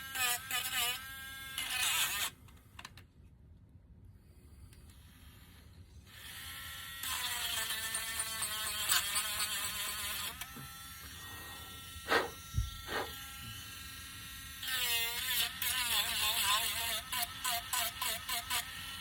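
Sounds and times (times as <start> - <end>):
electric sander buzzing: 11.0 - 13.1.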